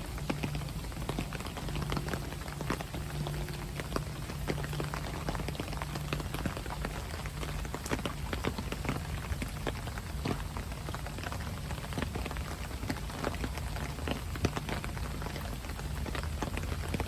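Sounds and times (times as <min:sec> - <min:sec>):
low hum: 0:00.0 - 0:07.3
raindrops pattering and dripping: 0:00.0 - 0:17.0.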